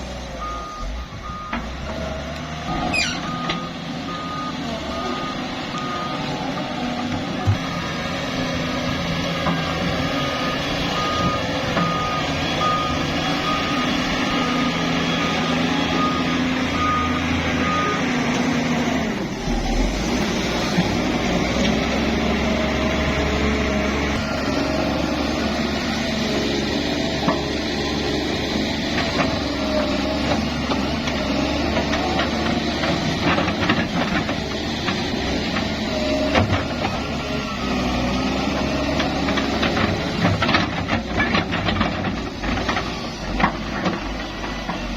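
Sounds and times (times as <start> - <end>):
heavy diesel engine running: 0.0 - 44.9
reversing alarm beeping: 0.3 - 1.9, 2.8 - 6.8, 10.0 - 18.2.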